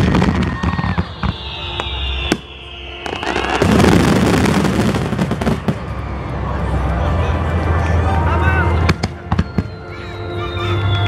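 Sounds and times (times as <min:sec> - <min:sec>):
firework whistle falling in pitch: 0:00.0 - 0:06.0, 0:08.8 - 0:11.0
fireworks bangs and crackling pops: 0:00.0 - 0:06.0
large firework burst: 0:00.0 - 0:06.1.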